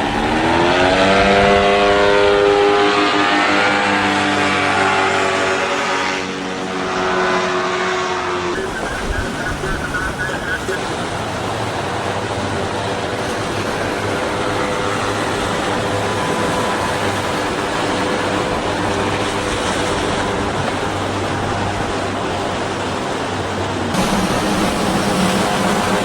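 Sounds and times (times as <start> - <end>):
boat engines humming: 0.0 - 26.0
water wash: 0.0 - 26.0
wind noise: 8.4 - 26.0.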